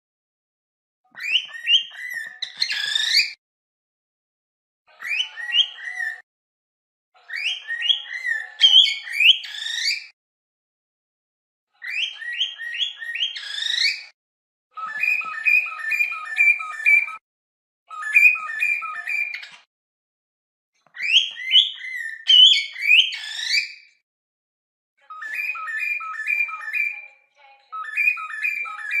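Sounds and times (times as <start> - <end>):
cockatiels whistling and chirping: 1.1 - 3.4, 5.0 - 6.2, 7.3 - 10.1, 11.8 - 14.1, 14.8 - 17.2, 17.9 - 19.7, 20.9 - 23.8, 25.1 - 27.0, 27.7 - 29.0.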